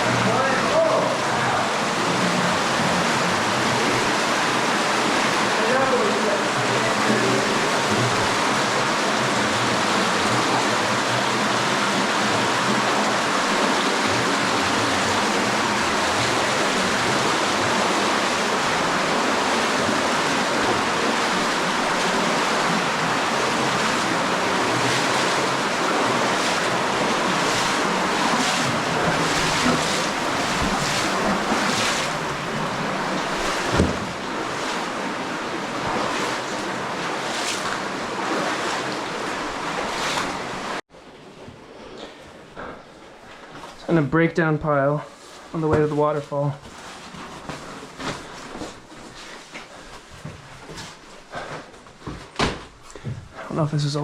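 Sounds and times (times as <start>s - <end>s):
stream rushing: 0.0s - 40.8s.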